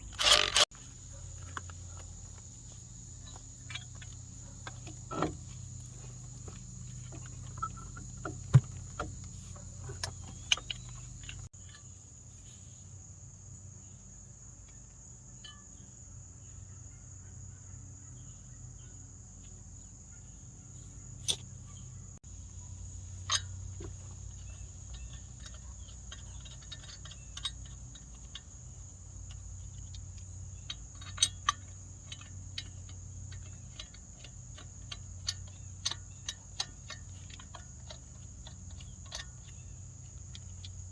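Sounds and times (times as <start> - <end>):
sharp clicks and knocks: 0.0 - 0.8, 3.3 - 11.5
crickets chirring: 0.0 - 40.9.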